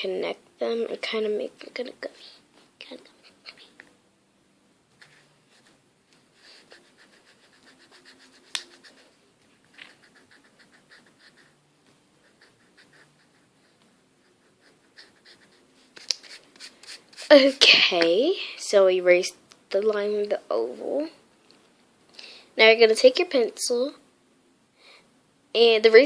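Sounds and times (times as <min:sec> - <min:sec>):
pencil sketching on paper: 0:05.0 - 0:17.7.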